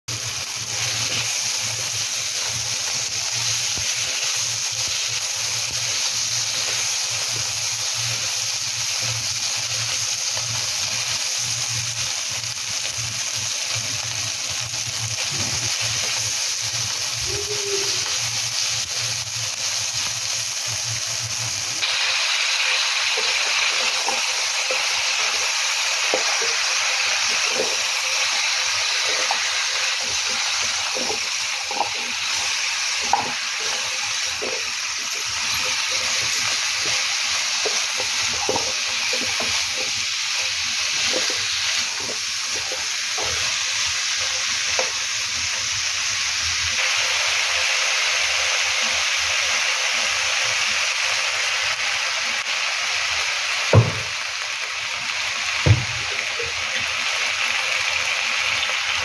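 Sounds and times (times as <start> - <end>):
food sizzling in oil: 0.1 - 59.0
spatula stirring in a wok: 21.8 - 46.2.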